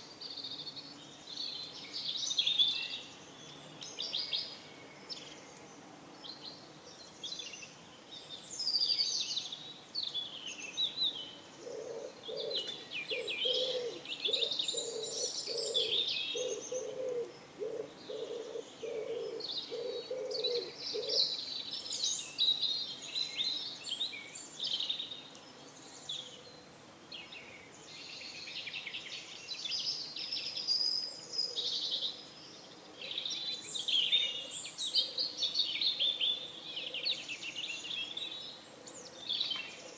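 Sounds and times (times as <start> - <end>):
songbirds chirping: 0.0 - 39.9
pigeon cooing: 11.6 - 21.2.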